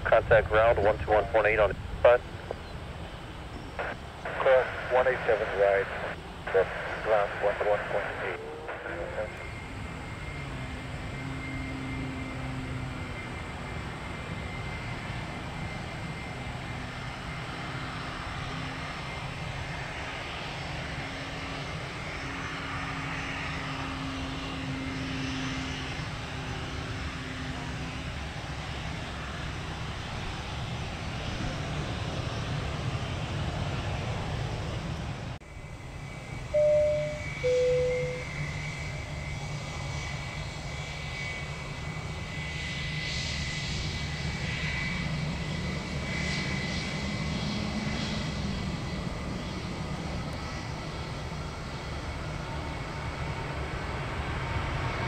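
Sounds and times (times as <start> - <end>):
airliner engine rumble: 0.0 - 55.0
short loud beeps: 36.6 - 38.3.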